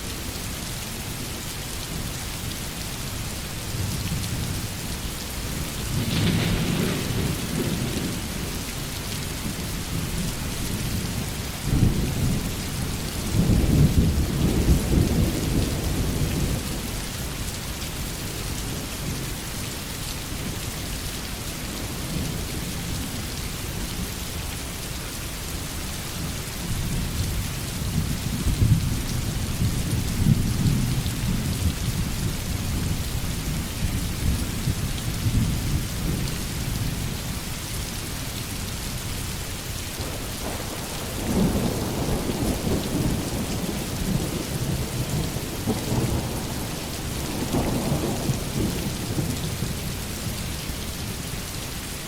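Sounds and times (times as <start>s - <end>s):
heavy rain falling: 0.0s - 52.0s
thunder rumbling: 5.8s - 8.6s, 40.0s - 49.6s
thunder crack: 6.0s - 7.8s.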